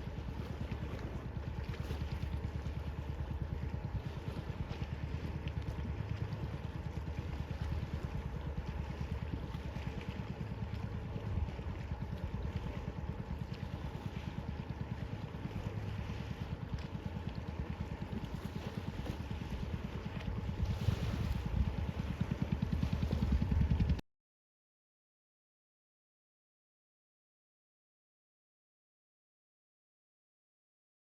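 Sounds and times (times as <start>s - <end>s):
boat engine throbbing: 0.0s - 24.0s
water noise: 0.0s - 24.0s
wind: 0.0s - 24.0s.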